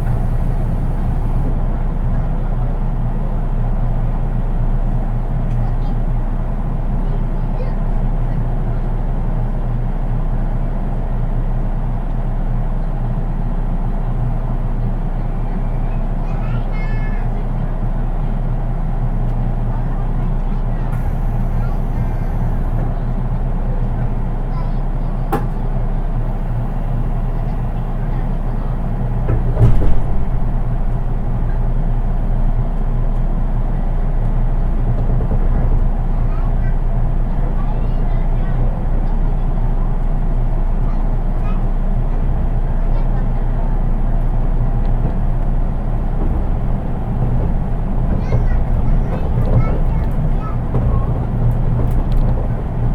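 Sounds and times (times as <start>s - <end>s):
train wheels rumbling on rail: 0.0s - 52.9s
loud clunk: 26.3s - 32.3s, 44.8s - 52.9s.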